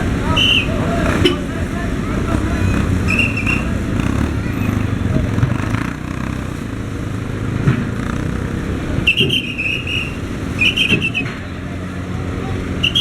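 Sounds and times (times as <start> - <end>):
vehicle engines rumbling: 0.0 - 13.0
trilling whistle blasts: 0.3 - 0.8, 3.0 - 3.8, 9.0 - 11.4, 12.8 - 13.0.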